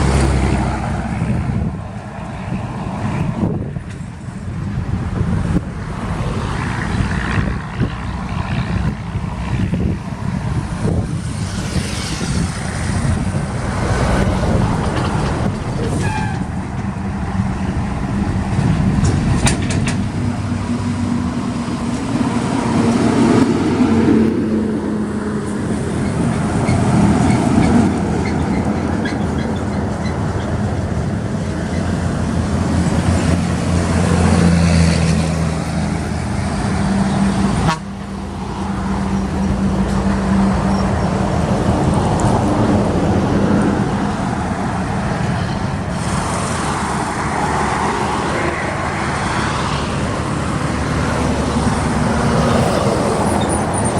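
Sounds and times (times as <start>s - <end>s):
diesel trucks on road: 0.0s - 53.9s
truck horn toots: 15.9s - 16.6s, 37.6s - 37.9s.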